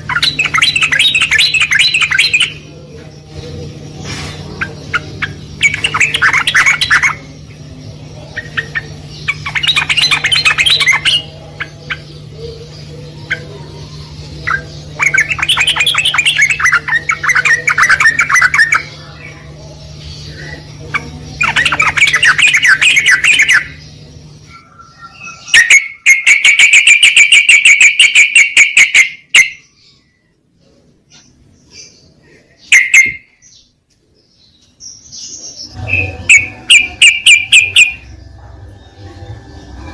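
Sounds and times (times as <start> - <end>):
bird warbling song: 0.0 - 39.9
low hum: 35.5 - 39.9.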